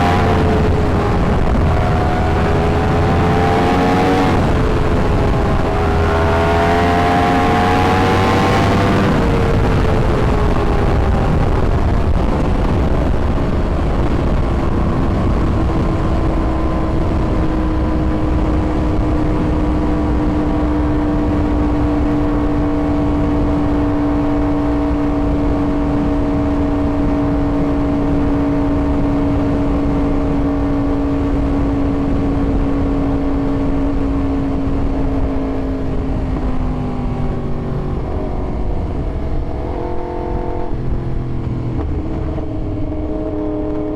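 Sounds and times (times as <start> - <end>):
motorcycle engine cruising: 0.0 - 43.9
low rushing noise: 31.0 - 43.9.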